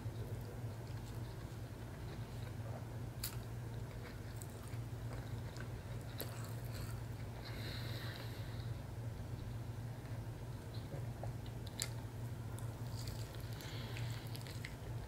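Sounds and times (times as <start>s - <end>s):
steady low hum: 0.0s - 15.0s
wet chewing: 3.2s - 7.3s, 12.6s - 15.0s.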